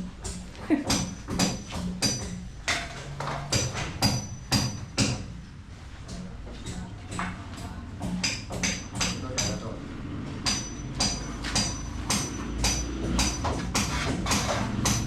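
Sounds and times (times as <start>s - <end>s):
hammer striking metal: 0.2s - 5.4s, 6.1s - 9.8s, 10.4s - 15.0s.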